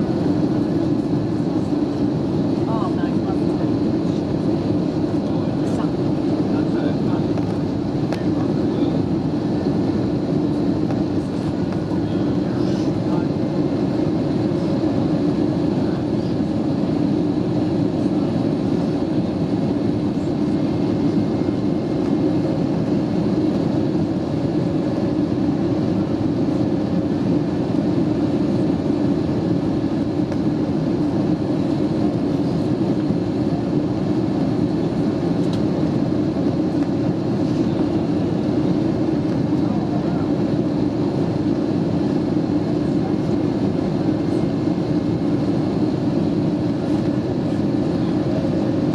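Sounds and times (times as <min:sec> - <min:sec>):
aircraft cabin engine rumble: 0:00.0 - 0:48.9.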